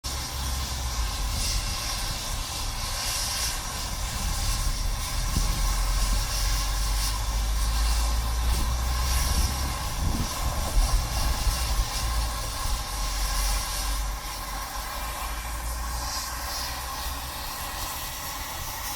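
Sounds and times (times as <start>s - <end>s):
steam train rumbling: 0.0s - 18.9s.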